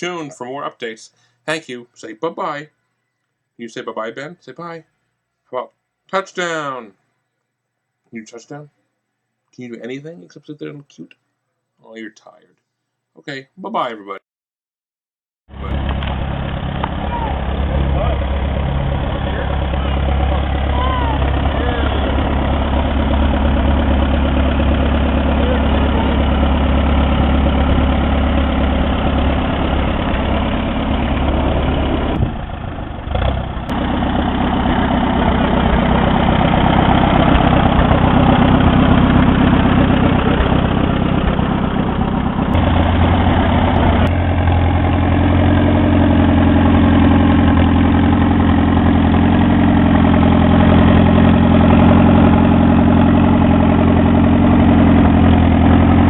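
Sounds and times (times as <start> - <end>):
tractor engine running: 15.5 - 56.0.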